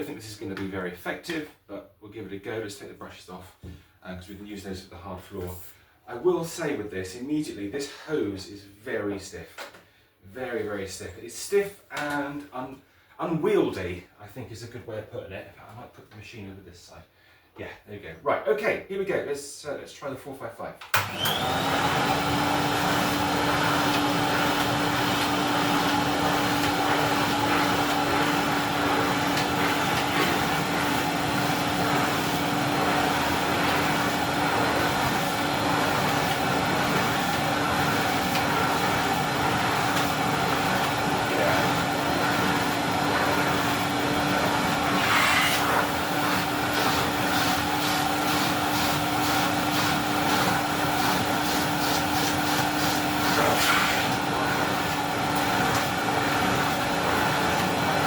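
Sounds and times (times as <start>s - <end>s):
vacuum cleaner humming: 21.0s - 58.0s.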